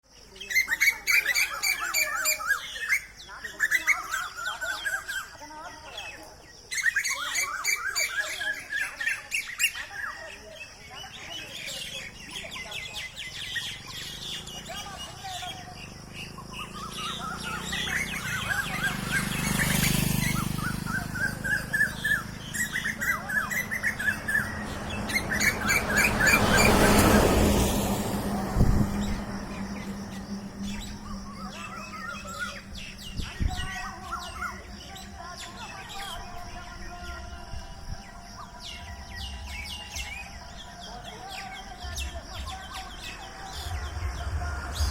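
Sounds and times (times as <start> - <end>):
birds chirping and calling: 0.0 - 44.9.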